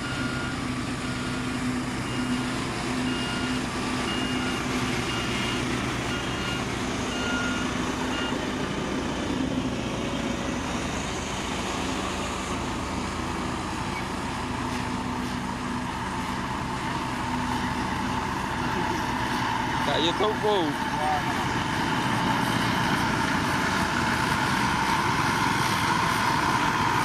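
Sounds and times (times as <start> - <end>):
reversing alarm beeping: 0.0 - 8.4
diesel engine running: 0.0 - 27.0.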